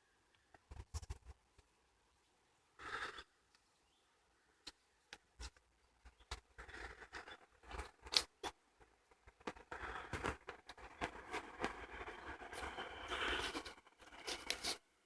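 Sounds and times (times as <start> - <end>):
crackles: 4.6 - 14.9.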